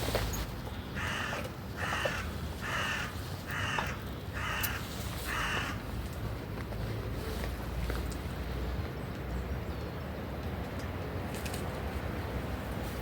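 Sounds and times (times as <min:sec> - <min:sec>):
bird cawing: 0:00.9 - 0:05.8.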